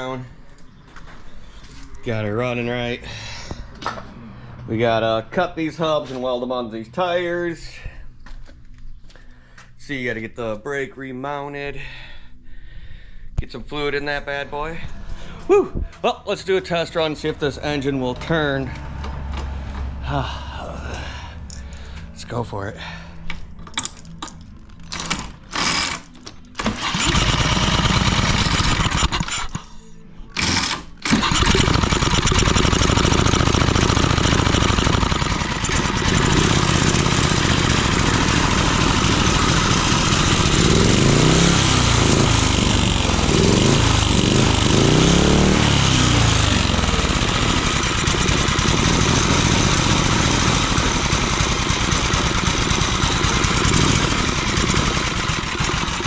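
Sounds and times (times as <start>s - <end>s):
small engine sputtering and revving: 26.6s - 29.6s, 30.4s - 56.0s.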